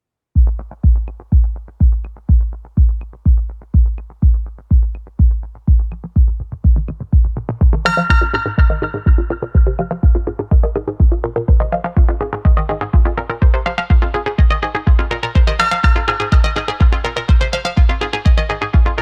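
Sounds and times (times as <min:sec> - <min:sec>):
deep kick drum: 0:00.4 - 0:19.0
bright sustained synth chords: 0:07.9 - 0:19.0.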